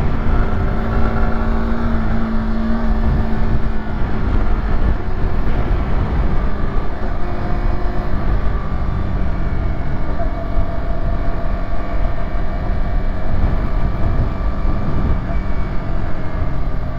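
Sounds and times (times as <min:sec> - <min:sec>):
motorcycle engine running: 0:00.0 - 0:16.9
wind rumble on microphone: 0:00.0 - 0:16.9.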